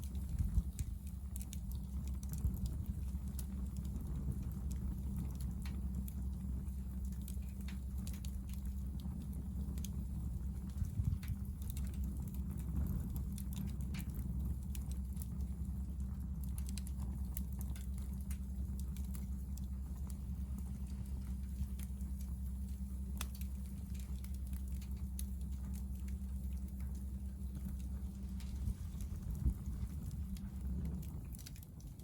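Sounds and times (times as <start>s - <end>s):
firewood crackling and popping: 0.0s - 32.0s
low fire rumble: 0.0s - 32.0s.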